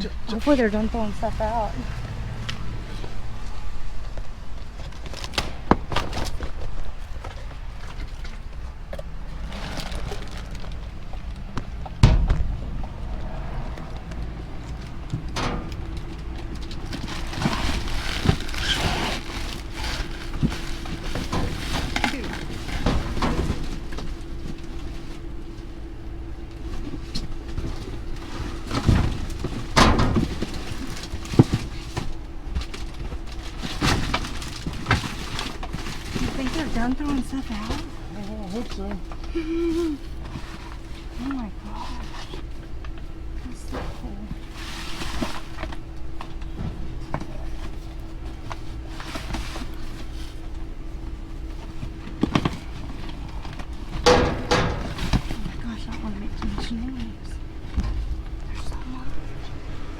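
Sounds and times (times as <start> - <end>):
items shifted in dumpster: 0.0 - 59.9
steady low hum: 0.0 - 59.9
loud knocks: 11.6 - 16.0.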